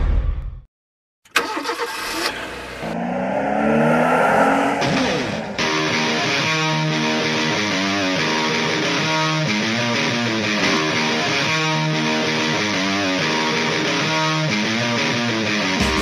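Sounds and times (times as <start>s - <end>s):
car engine starting and revving: 1.3s - 6.8s
music: 5.0s - 16.0s.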